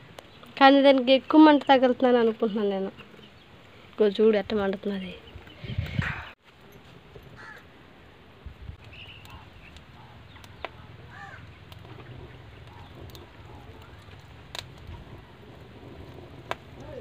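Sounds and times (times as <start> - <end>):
birds chirping: 0.0 - 6.4, 8.8 - 15.6.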